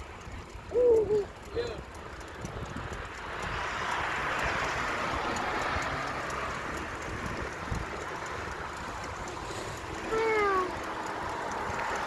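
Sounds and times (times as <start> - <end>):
wind rumble on microphone: 0.0 - 12.0
passing vehicle hiss: 9.3 - 12.0.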